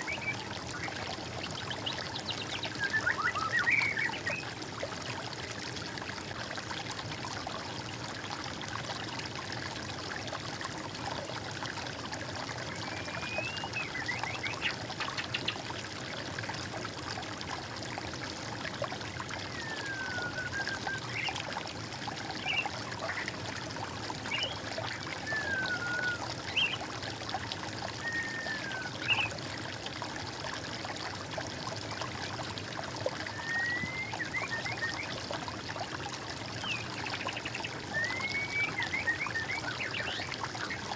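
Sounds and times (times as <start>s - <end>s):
water trickling: 0.0s - 40.9s
bird whistling calls: 12.8s - 14.5s, 19.6s - 21.3s, 25.2s - 26.8s, 28.0s - 29.3s, 33.3s - 35.1s, 37.9s - 39.8s.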